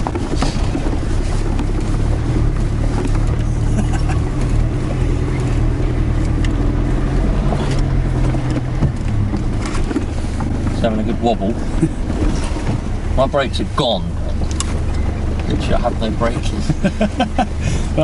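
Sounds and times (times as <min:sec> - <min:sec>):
truck engine running: 0:00.0 - 0:18.0
vehicle knocks: 0:07.5 - 0:10.7.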